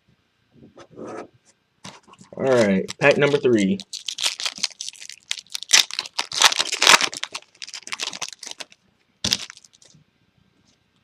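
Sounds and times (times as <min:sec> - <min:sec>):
foil wrapper crinkling: 0:02.4 - 0:09.9
foil wrapper ripping: 0:02.5 - 0:09.9.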